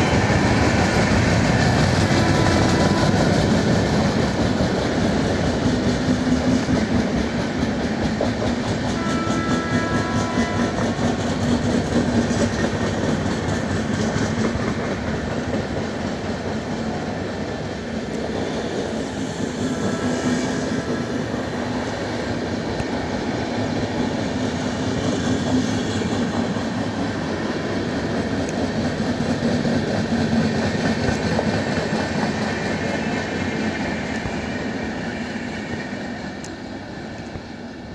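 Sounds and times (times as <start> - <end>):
train rumbling past: 0.0 - 37.9
train wheels clickety-clack: 0.0 - 37.9.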